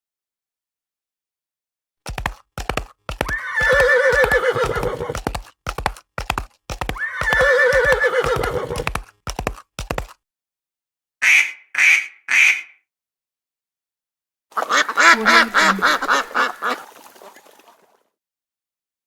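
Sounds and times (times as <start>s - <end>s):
clip-clop of hooves: 2.1s - 10.2s
horse whinnying: 3.1s - 5.4s, 6.8s - 9.1s.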